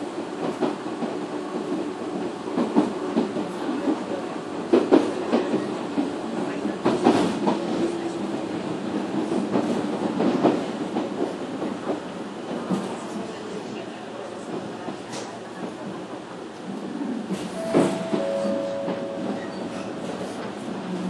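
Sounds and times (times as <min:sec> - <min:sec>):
railcar running rumble: 0:00.0 - 0:21.0.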